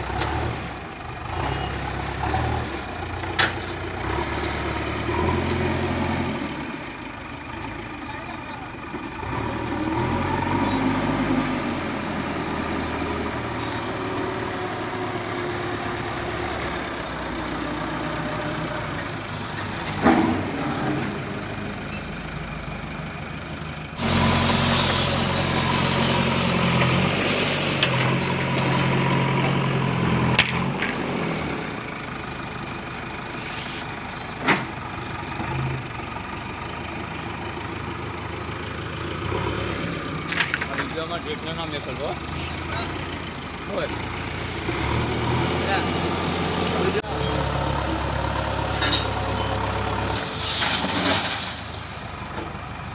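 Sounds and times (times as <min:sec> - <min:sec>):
backhoe diesel engine working: 0:00.0 - 0:52.9.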